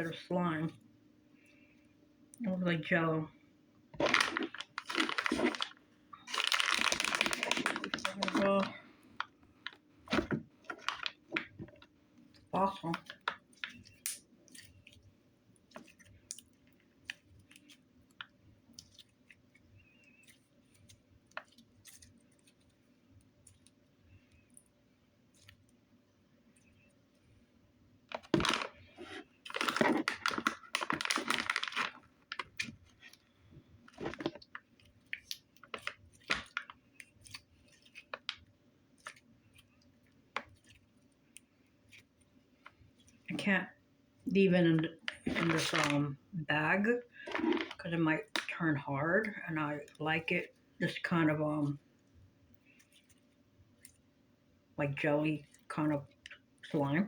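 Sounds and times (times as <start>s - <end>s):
hands squishing sticky slime: 4.0s - 11.8s, 12.5s - 24.6s, 28.2s - 33.2s, 33.9s - 43.4s, 47.2s - 48.6s.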